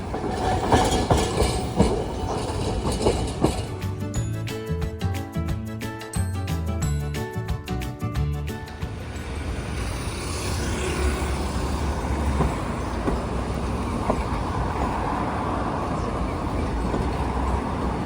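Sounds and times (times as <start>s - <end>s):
street traffic: 0.0s - 5.2s, 7.7s - 18.0s
heavy vehicle droning: 8.5s - 18.0s.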